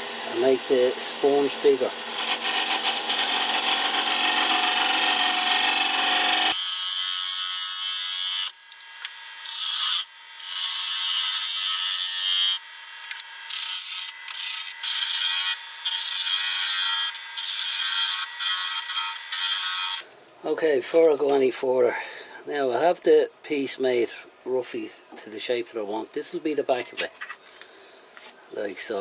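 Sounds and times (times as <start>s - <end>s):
lathe tool cutting wood: 0.0s - 8.5s.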